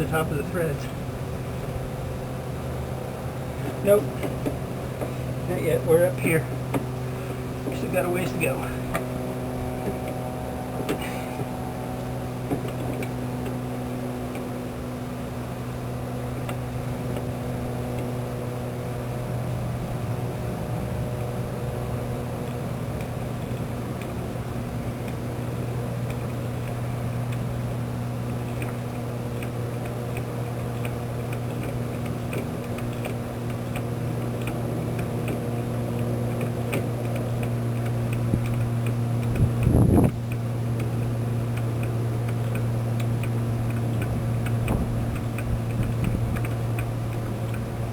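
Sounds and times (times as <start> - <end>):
electric motor humming: 20.5 - 47.9.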